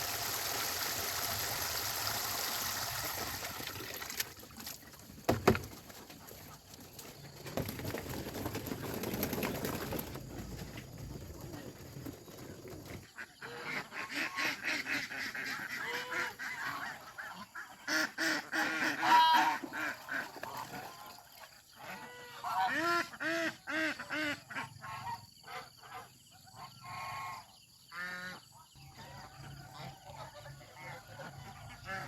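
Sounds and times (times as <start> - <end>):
geese honking: 13.3 - 20.1.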